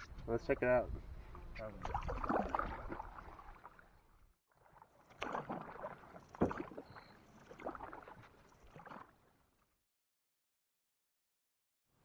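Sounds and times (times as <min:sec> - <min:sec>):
paddle splashing in water: 0:01.7 - 0:09.5.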